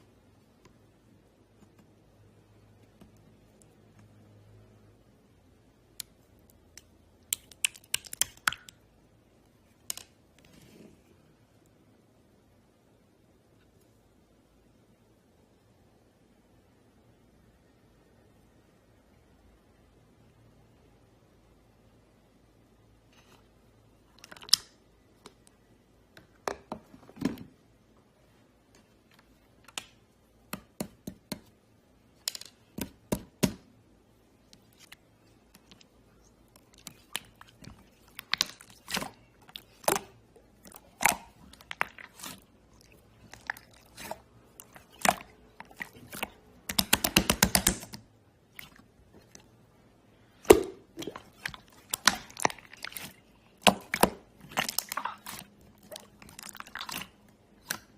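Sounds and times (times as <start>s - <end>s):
slime squished by hand: 34.6s - 49.5s, 50.3s - 57.9s.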